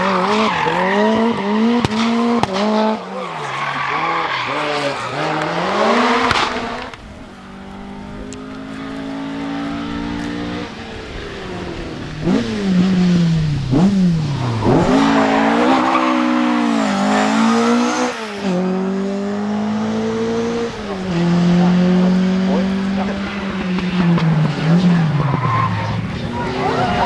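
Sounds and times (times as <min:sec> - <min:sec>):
rally car engine revving: 0:00.0 - 0:27.0.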